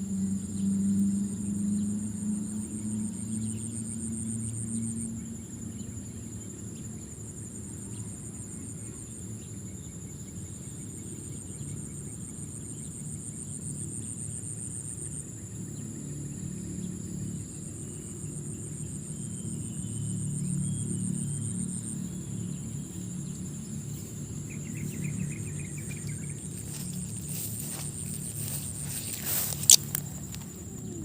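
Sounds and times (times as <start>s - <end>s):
low droning background music: 0.0s - 7.4s, 15.2s - 31.0s
insects chirping: 0.0s - 31.0s.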